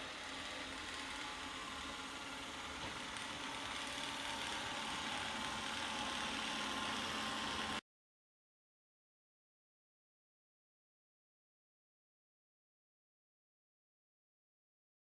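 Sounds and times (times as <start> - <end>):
robot vacuum whirring: 0.0 - 7.8.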